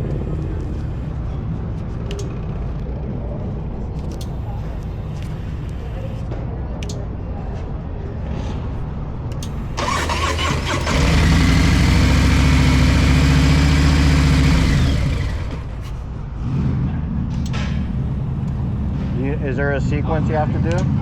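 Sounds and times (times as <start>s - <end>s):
motorcycle engine starting and running: 9.4s - 19.6s.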